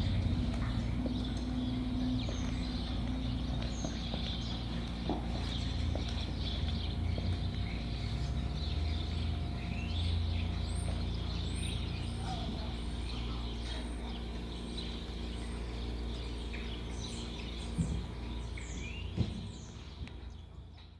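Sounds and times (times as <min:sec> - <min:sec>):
low rumble: 0:00.0 - 0:13.0
small birds chirping: 0:00.0 - 0:20.9.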